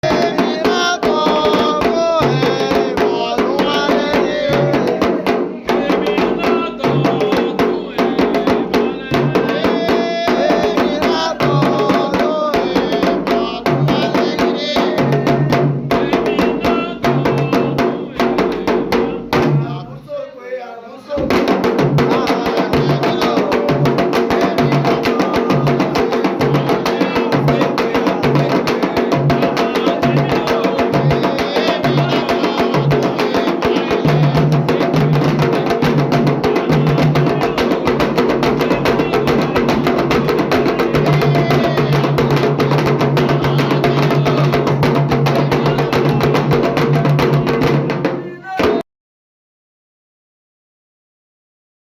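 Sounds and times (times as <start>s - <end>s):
drumming and percussion: 0.0s - 20.1s, 21.1s - 48.8s.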